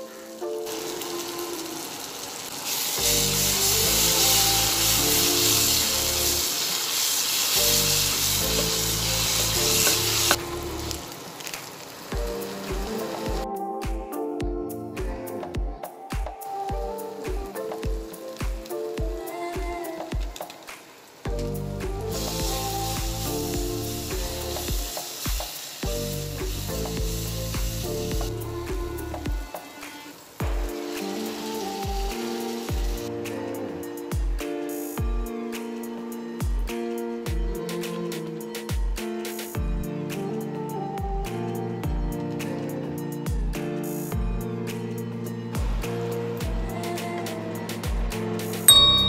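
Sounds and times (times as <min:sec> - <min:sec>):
background music: 0:00.0 - 0:11.4, 0:12.0 - 0:49.0
vegetables sizzling in hot oil: 0:00.0 - 0:13.5, 0:16.4 - 0:35.0.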